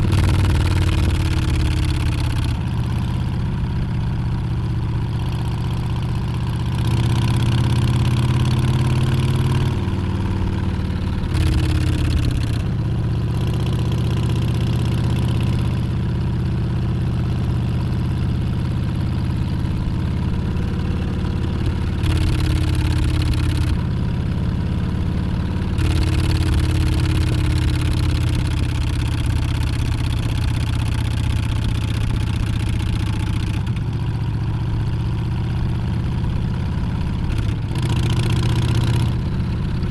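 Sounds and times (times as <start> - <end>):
motorcycle accelerating: 0.0 - 39.9.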